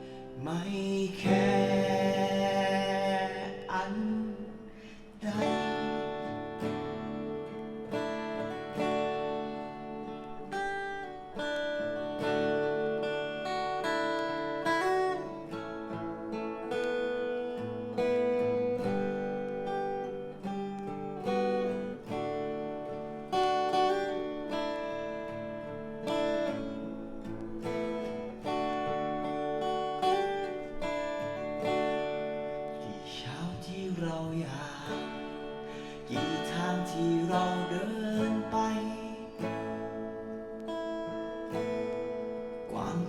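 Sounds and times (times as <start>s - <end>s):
acoustic guitar: 0.0s - 43.0s.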